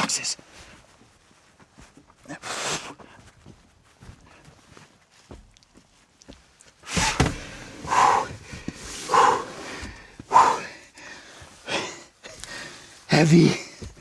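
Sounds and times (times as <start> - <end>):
man breathing hard: 6.9 - 13.1.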